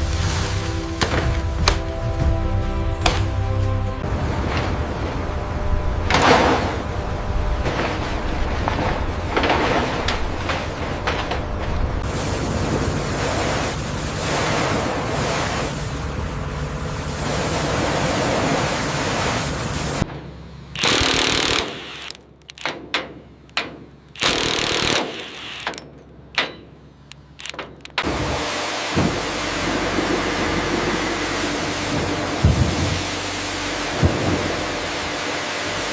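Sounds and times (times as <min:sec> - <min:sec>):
power tool short loud bursts: 0:20.8 - 0:22.2, 0:24.2 - 0:25.8
power tool rushing din: 0:20.8 - 0:22.7, 0:24.2 - 0:25.8.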